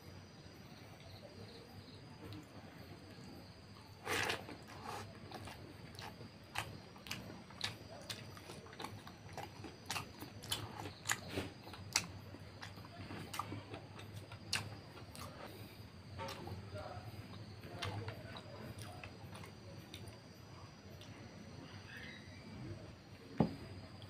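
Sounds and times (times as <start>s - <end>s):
wet chewing mouth clicks: 4.1s - 15.5s.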